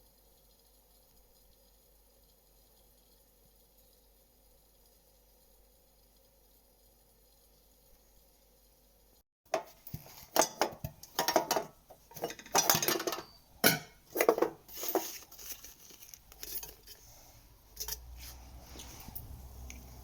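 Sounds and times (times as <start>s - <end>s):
household objects clinking and clattering: 9.5s - 19.9s.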